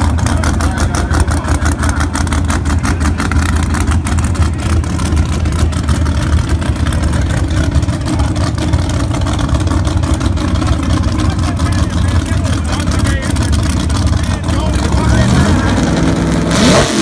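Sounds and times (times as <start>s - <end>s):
race engine idling loudly: 0.0s - 17.0s.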